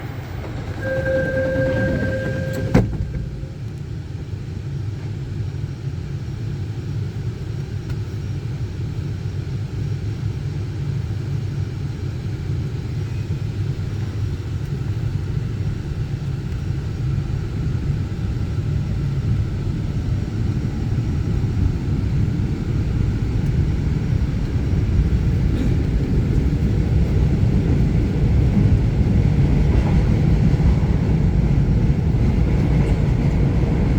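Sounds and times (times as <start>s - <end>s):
brief steady tone: 0.0s - 3.7s
subway train rumble: 0.0s - 33.9s.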